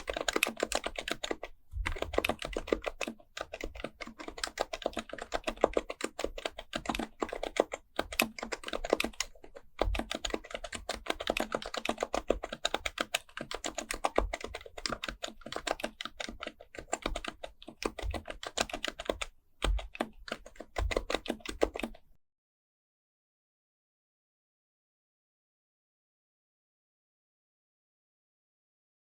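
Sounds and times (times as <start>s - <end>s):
fast keyboard typing: 0.0s - 22.0s.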